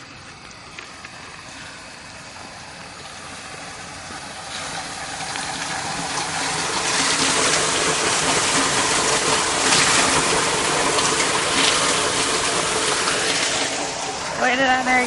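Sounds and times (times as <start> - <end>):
rushing floodwater: 0.0 - 15.0.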